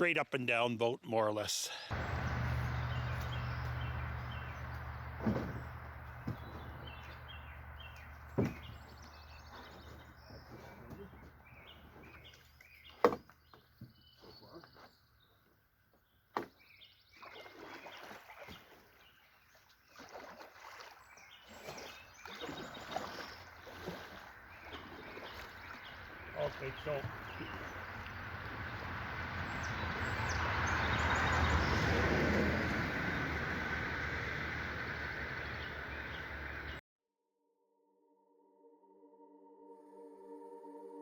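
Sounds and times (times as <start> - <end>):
knocks against canoe hull: 4.7 - 7.1, 8.2 - 11.4, 12.9 - 14.0.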